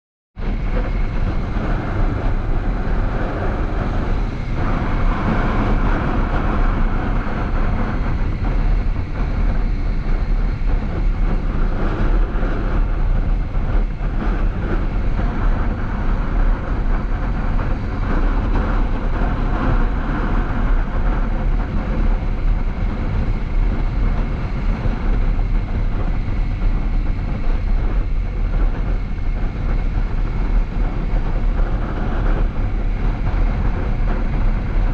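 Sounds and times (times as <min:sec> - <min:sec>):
road noise: 0:00.4 - 0:34.9
wind rush on microphone: 0:00.4 - 0:34.9.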